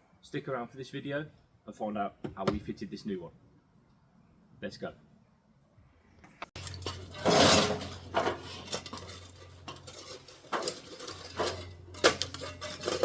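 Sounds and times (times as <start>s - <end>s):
metal scraping and clinking on rubble: 6.6s - 13.0s.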